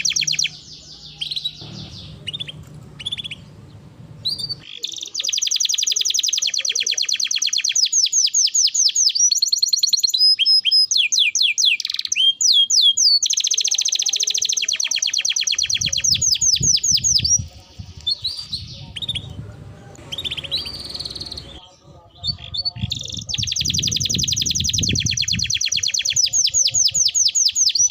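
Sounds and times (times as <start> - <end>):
canary singing: 0.0 - 27.9
low rumbling noise: 0.2 - 4.6, 17.0 - 24.0.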